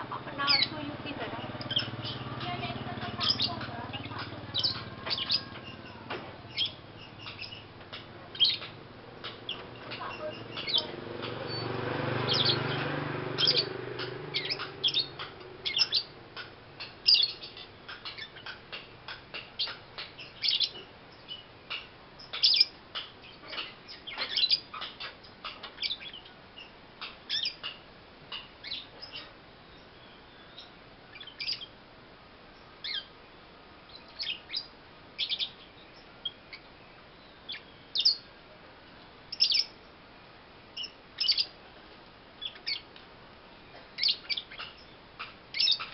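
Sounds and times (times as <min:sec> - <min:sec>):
young lovebird chirping: 0:00.4 - 0:07.7, 0:08.3 - 0:11.7, 0:12.3 - 0:12.8, 0:13.4 - 0:16.2, 0:17.0 - 0:18.6, 0:19.6 - 0:31.8, 0:32.8 - 0:33.1, 0:33.9 - 0:36.6, 0:37.5 - 0:38.2, 0:39.3 - 0:39.8, 0:40.8 - 0:41.6, 0:42.4 - 0:42.9, 0:44.0 - 0:45.9.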